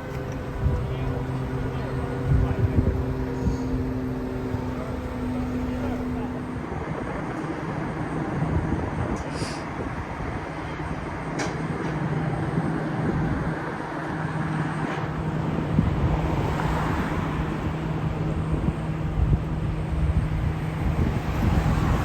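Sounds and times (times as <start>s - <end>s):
low steady hum: 0.0s - 9.3s
road noise: 0.0s - 22.0s
truck engine drone: 0.0s - 22.0s.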